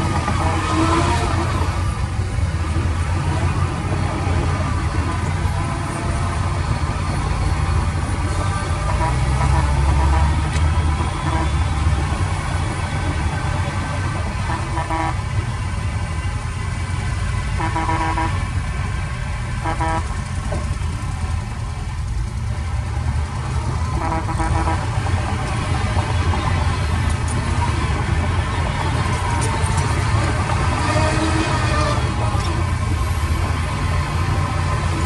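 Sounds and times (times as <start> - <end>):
heavy vehicle engine rumbling: 0.0 - 35.0
vehicle horn toots: 8.5 - 13.4, 14.3 - 15.5, 17.6 - 18.5, 19.6 - 20.2, 23.9 - 25.1.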